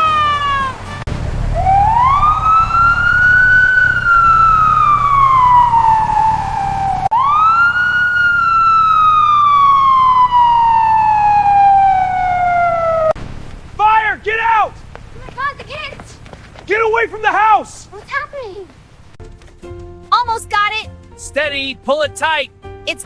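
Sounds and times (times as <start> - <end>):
fire engine siren wailing: 0.0 - 15.9
low rumble: 1.0 - 7.2.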